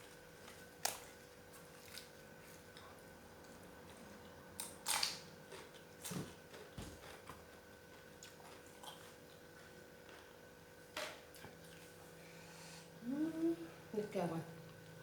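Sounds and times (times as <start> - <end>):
low steady hum: 0.0 - 15.0
person chewing: 4.6 - 10.4.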